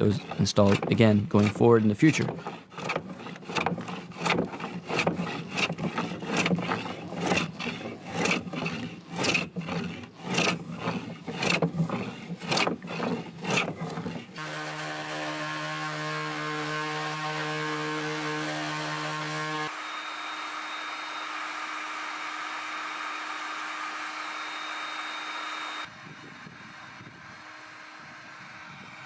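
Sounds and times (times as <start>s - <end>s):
hand tool strokes on wood: 0.0s - 21.9s
electric tool motor running: 0.0s - 29.0s.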